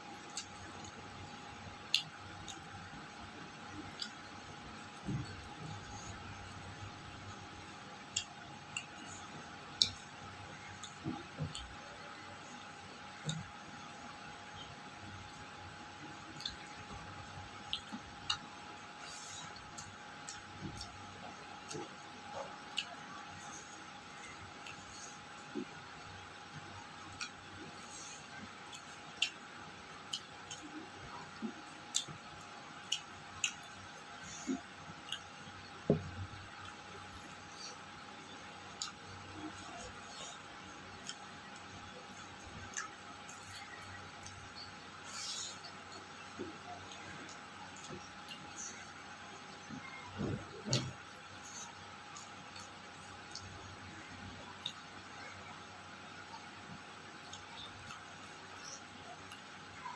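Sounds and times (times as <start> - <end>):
sharp eating clicks: 0.2 - 3.0, 3.6 - 6.6, 8.0 - 59.9
person chewing: 3.7 - 4.3, 8.0 - 55.0.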